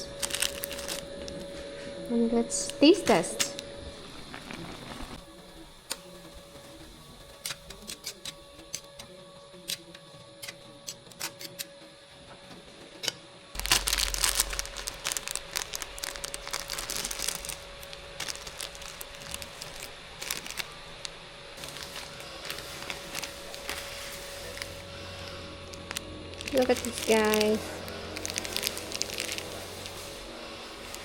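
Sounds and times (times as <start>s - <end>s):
plastic packaging crinkling: 0.0s - 1.5s, 3.5s - 5.7s, 13.6s - 31.0s
low rumble: 13.6s - 20.6s.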